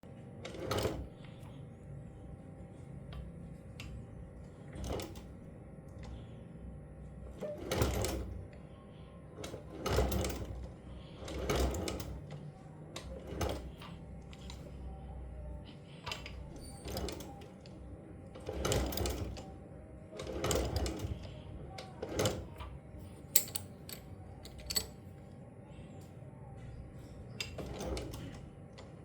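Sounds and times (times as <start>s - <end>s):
sewing machine stitching: 0.5s - 1.1s, 7.4s - 8.4s, 9.4s - 12.4s, 13.0s - 14.6s, 16.1s - 17.5s, 18.4s - 19.5s, 20.2s - 21.3s, 27.4s - 28.4s.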